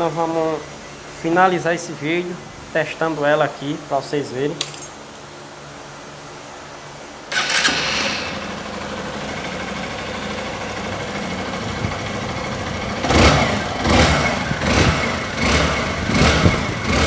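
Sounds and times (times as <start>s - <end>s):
engine revving in throttle blips: 7.3s - 17.0s
motorcycle engine idling: 7.3s - 17.0s.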